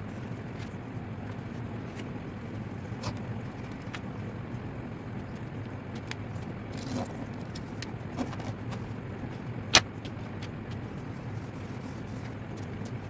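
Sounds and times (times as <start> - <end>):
steady low hum: 0.0 - 13.0
paper crackling: 5.9 - 13.0.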